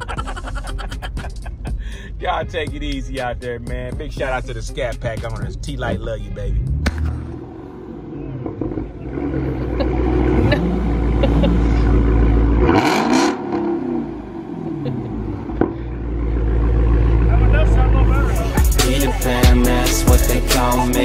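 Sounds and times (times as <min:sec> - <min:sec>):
car engine rumbling and revving: 0:00.0 - 0:21.0
sharp exhaust pop: 0:06.8 - 0:07.4.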